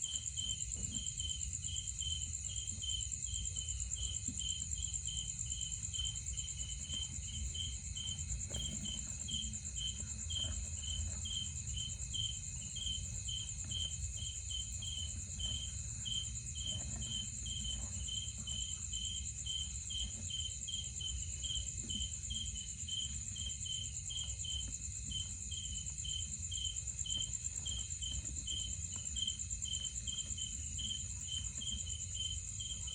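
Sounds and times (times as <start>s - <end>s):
insect chirping: 0.0s - 32.9s.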